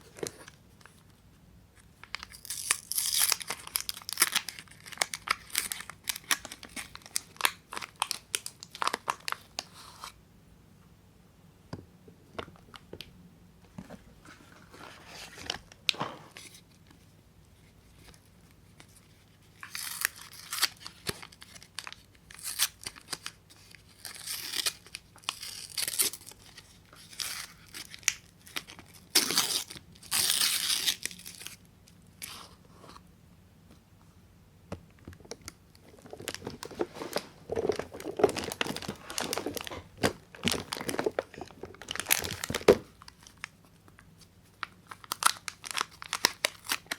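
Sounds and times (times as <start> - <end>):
wrappers tearing and crinkling: 2.1 - 9.4, 19.6 - 31.6, 35.9 - 43.5, 44.6 - 46.9.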